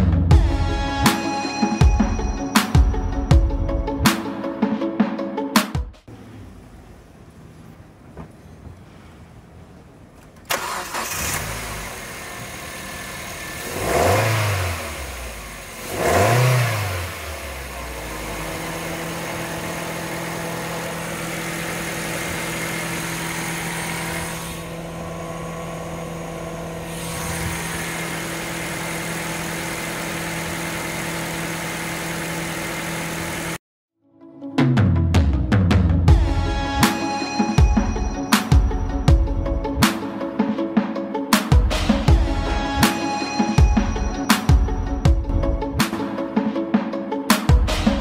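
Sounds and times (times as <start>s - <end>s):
car engine revving and idling: 6.0s - 33.6s.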